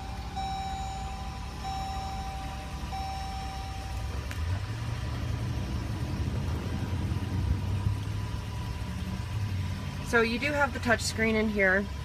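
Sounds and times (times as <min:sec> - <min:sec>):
electronic dashboard tone: 0:00.0 - 0:04.9
car engine starting and idling: 0:00.0 - 0:12.0.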